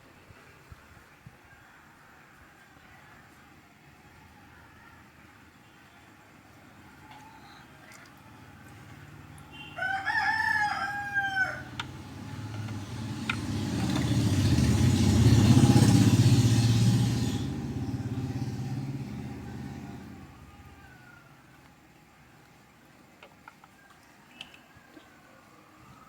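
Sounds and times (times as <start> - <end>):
motor vehicle passing: 8.2 - 21.1
rooster crowing: 9.5 - 21.7.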